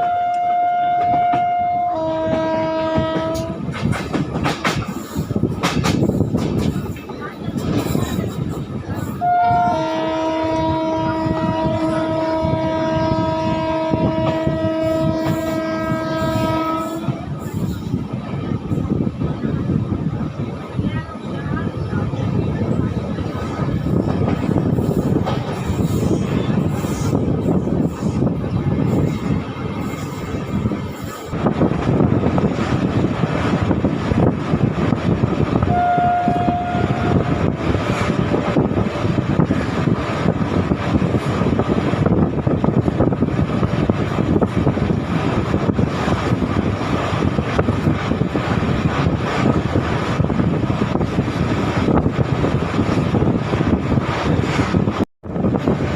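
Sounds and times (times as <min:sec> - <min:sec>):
train horn blast: 0:00.0 - 0:03.7, 0:09.2 - 0:17.3, 0:35.6 - 0:38.1
train rumble and wheel clatter: 0:00.0 - 0:55.9.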